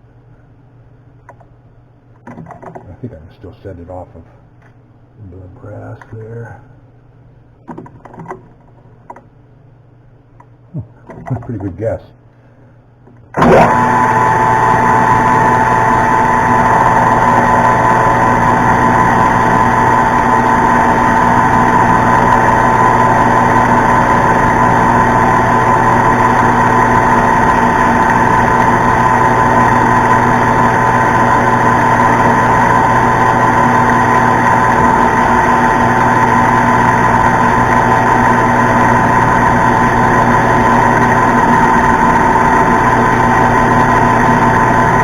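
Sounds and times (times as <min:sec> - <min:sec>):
metal lathe humming and whining: 0:13.4 - 0:45.0.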